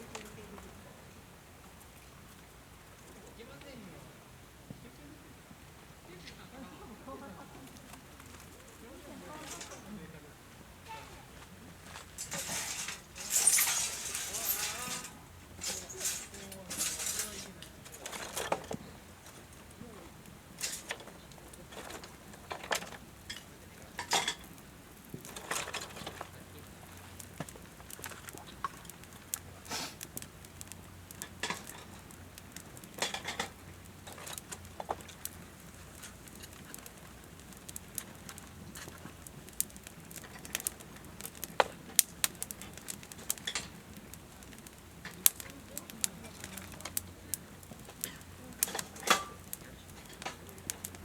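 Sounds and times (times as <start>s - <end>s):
campfire crackling: 0.0s - 51.0s
metal camp gear clinking: 9.3s - 9.9s, 11.9s - 19.7s, 20.6s - 24.5s, 25.2s - 26.4s, 33.0s - 36.9s, 45.0s - 51.0s.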